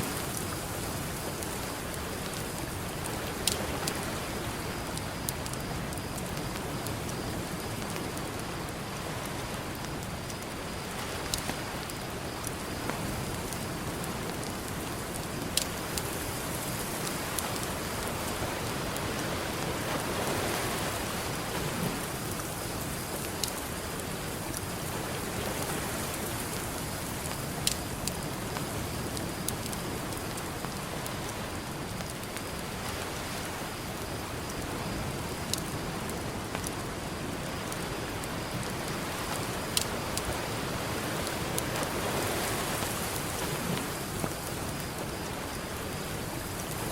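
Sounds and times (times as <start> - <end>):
campfire crackling and popping: 0.0 - 46.9
ocean surf: 15.7 - 26.9, 37.2 - 46.9.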